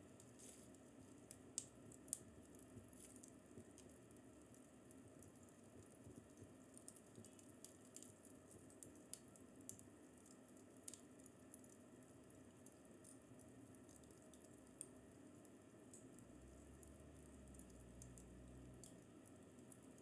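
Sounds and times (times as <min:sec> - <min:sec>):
fireplace crackling: 0:00.0 - 0:20.0.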